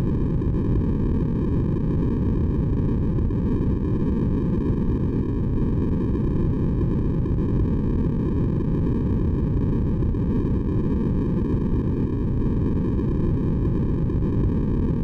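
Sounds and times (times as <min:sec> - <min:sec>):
muffled white noise: 0:00.0 - 0:15.0.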